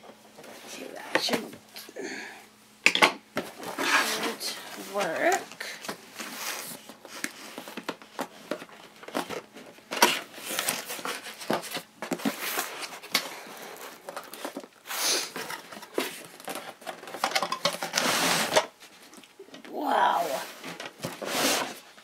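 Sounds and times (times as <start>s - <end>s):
packaging crinkling and tearing: 5.3s - 19.3s.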